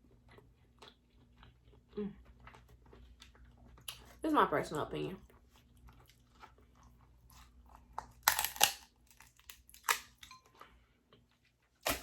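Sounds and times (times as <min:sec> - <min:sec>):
crab shell cracking: 0:08.0 - 0:10.3.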